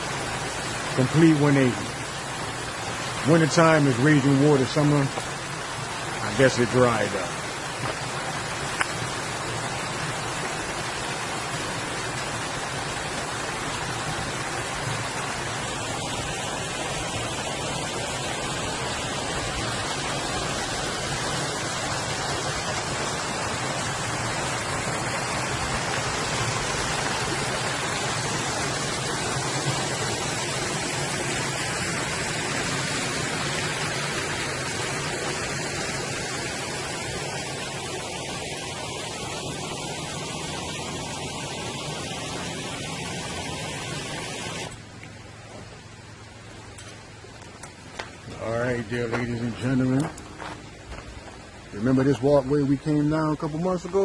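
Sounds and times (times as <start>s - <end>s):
waterfall flowing over rocks: 0.0s - 54.0s.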